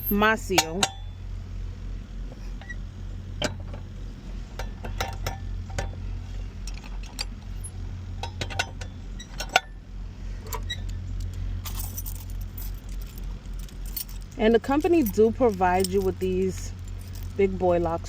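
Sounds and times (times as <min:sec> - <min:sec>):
steady low hum: 0:00.0 - 0:18.0
padlock metal clicks and clinks: 0:10.5 - 0:17.4.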